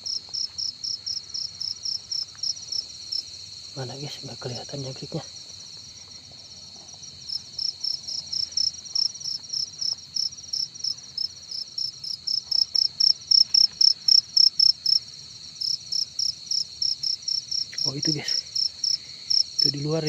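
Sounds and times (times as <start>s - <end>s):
continuous high insect trill: 0.0s - 20.0s
cricket chirping: 0.0s - 20.0s.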